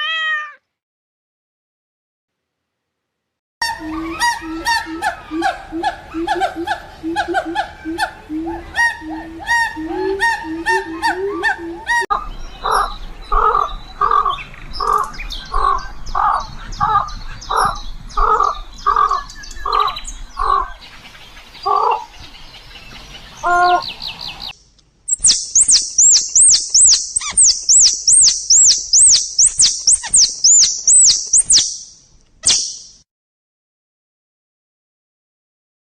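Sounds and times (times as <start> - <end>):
harsh bird call: 3.6 - 20.7, 25.1 - 33.0
rapid high-pitched bird chirps: 8.6 - 12.1, 25.1 - 33.0.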